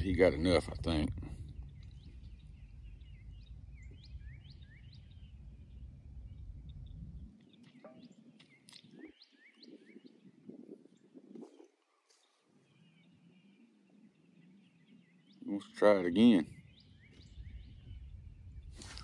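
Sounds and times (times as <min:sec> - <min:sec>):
low rumble: 0:00.0 - 0:07.3.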